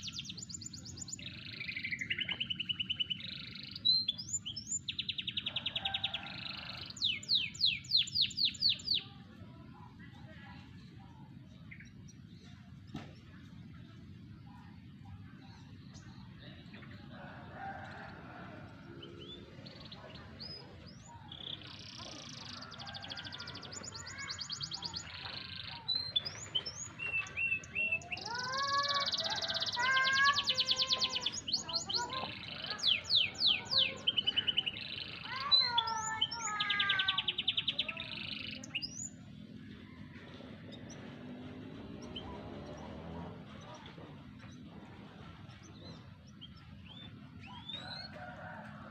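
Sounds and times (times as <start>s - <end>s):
canary singing trills: 45.8s - 48.7s.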